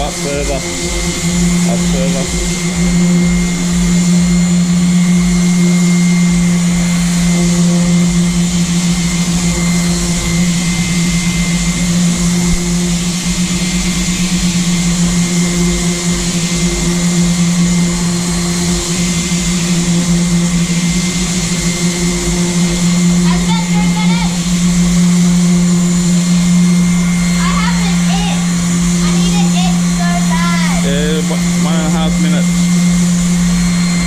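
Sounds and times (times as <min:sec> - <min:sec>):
electric sander on metal: 0:00.0 - 0:34.0.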